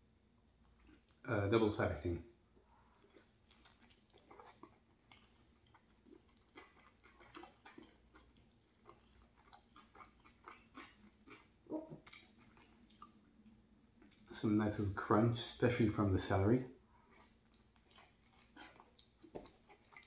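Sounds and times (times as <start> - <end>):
chewing food: 0.6 - 1.2, 2.6 - 14.4, 16.8 - 20.0
wet mouth clicks: 9.5 - 13.2.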